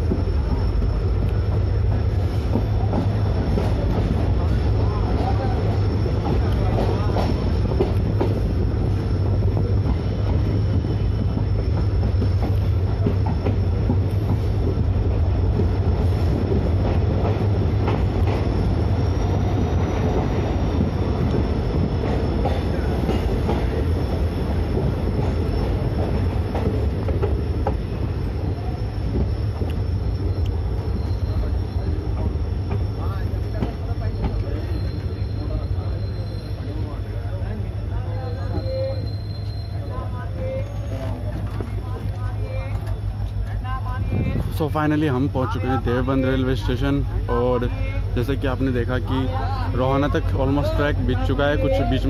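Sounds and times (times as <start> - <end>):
wheel-on-rail rumble: 0.0 - 52.0
high wheel squeal: 4.4 - 14.6, 18.5 - 41.6.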